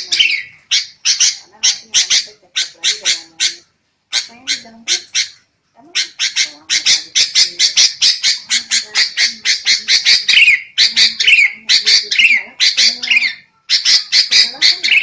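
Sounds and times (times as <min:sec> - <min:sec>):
bulbuls chattering: 0:00.0 - 0:15.0.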